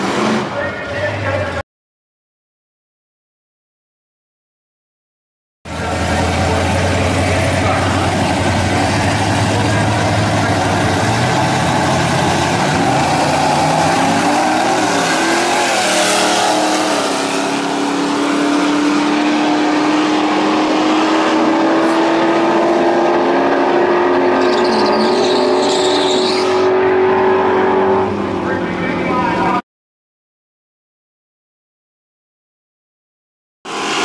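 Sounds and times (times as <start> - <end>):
truck engines at full throttle: 0.0 - 1.6, 5.7 - 29.6, 33.7 - 34.0.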